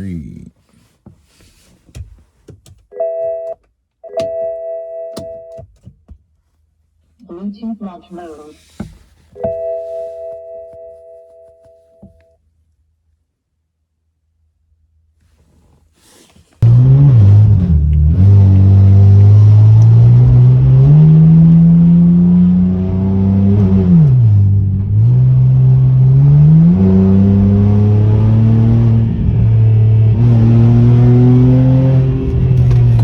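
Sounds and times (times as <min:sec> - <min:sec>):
car engine revving: 0:16.6 - 0:33.0.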